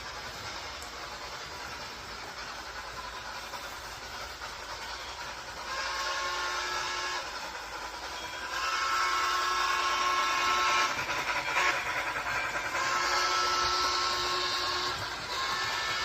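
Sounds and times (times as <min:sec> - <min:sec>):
train whistle blowing: 0:05.6 - 0:07.4, 0:08.0 - 0:16.0.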